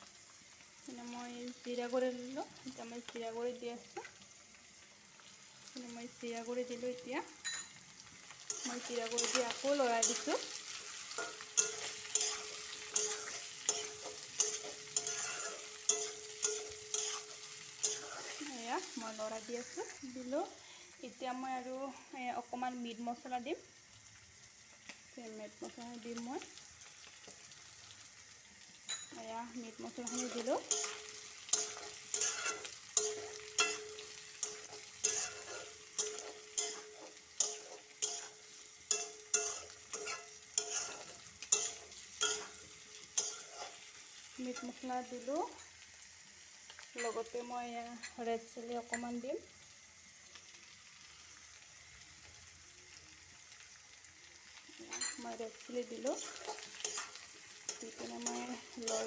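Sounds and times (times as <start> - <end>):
oil sizzling: 0.0 - 59.0
spatula scraping a pan: 8.4 - 18.6, 29.9 - 44.8, 55.8 - 59.0.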